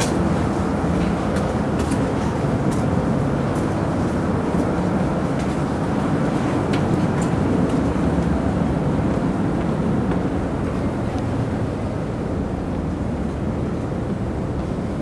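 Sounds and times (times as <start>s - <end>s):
ship engines rumbling: 3.8s - 15.0s.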